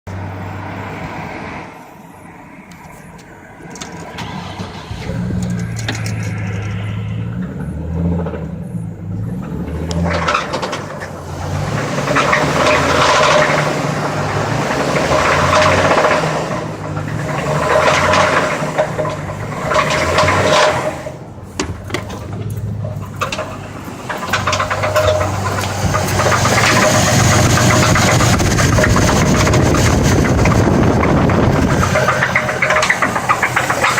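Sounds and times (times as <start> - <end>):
car engine revving with knocking: 3.6 - 33.9.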